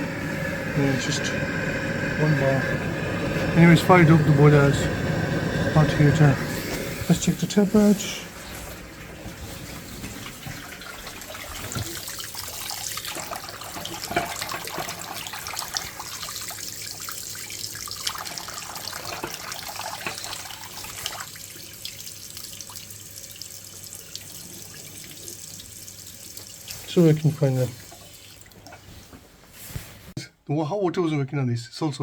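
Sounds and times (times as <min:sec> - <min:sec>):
tap running into sink: 0:10.0 - 0:16.5, 0:18.0 - 0:21.3.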